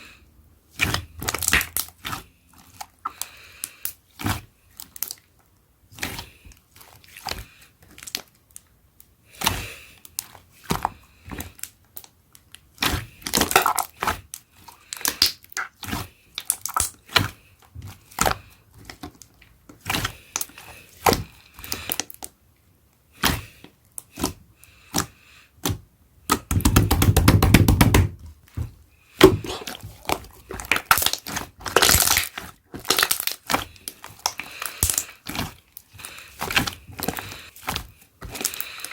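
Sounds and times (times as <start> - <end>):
slime squishing and popping: 0.8 - 2.2, 12.8 - 14.3, 15.0 - 17.3, 25.6 - 28.2, 29.2 - 35.6.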